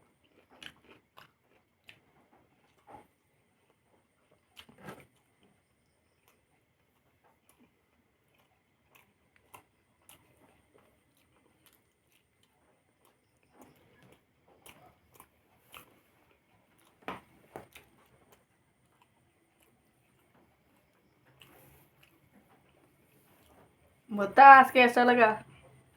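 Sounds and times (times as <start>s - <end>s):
person chewing food: 0.0s - 24.1s.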